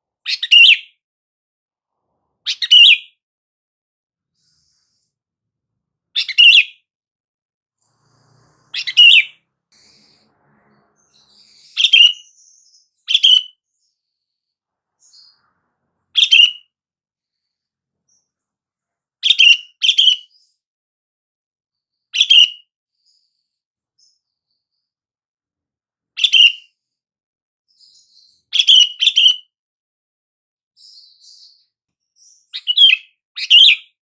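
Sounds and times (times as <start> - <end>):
bulbul giving bright calls: 8.4 - 13.5, 16.2 - 16.6.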